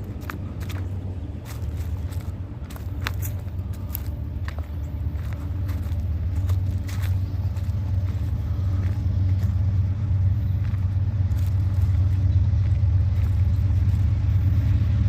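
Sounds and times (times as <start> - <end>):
diesel locomotive engines droning: 0.0 - 15.0.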